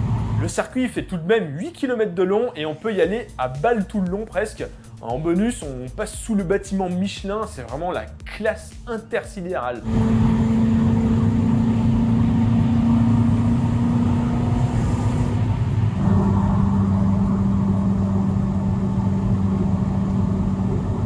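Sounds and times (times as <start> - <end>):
car engine at high speed: 0.0 - 0.5, 9.8 - 21.0
road rumble: 0.0 - 0.6, 9.8 - 21.0.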